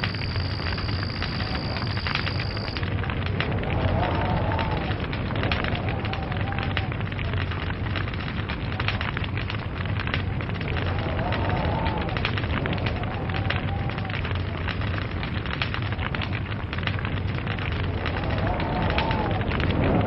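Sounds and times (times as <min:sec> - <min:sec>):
faint wavering whistle: 0:00.0 - 0:02.8
log fire crackling and popping: 0:00.0 - 0:20.0.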